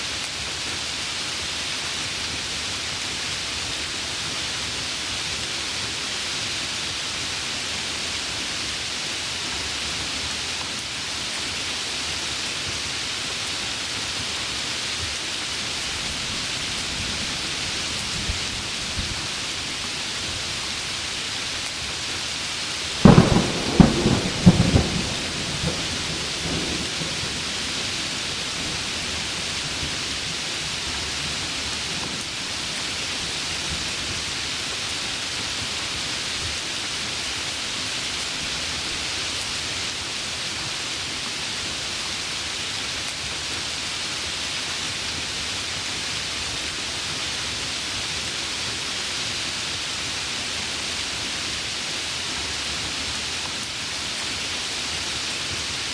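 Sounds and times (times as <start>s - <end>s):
heavy rain falling: 0.0s - 55.9s
thunder cracks and rumbles: 23.0s - 28.9s.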